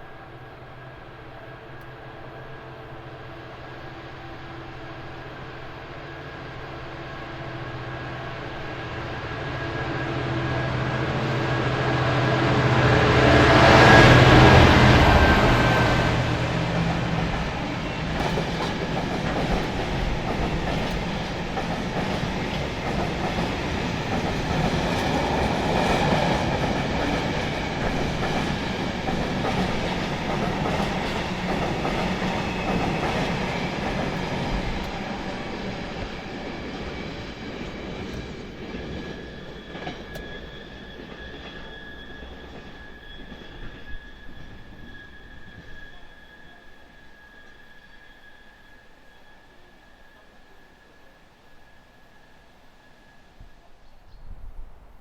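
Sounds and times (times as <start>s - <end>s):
train wheel squeal: 1.4s - 54.4s
freight train wheels clacking: 9.1s - 46.0s.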